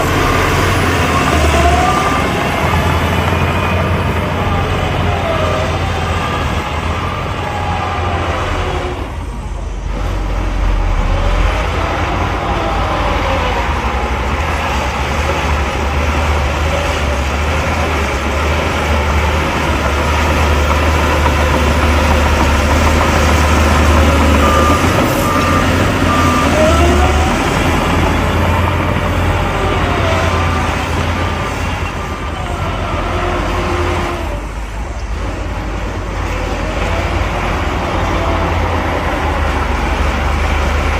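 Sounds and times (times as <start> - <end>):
diesel engines revving: 0.0 - 40.9
reversing alarm beeps: 23.2 - 29.0.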